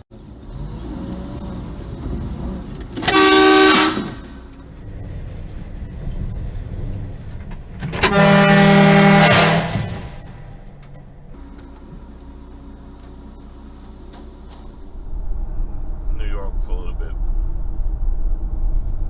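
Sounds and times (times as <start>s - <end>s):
road and engine noise: 0.0s - 19.0s
car horn blasts: 3.0s - 4.4s, 7.9s - 10.2s.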